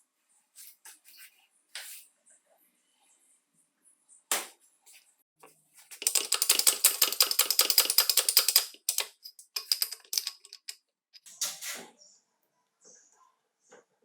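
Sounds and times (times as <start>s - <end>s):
rapid mechanical clicking: 6.0s - 10.8s.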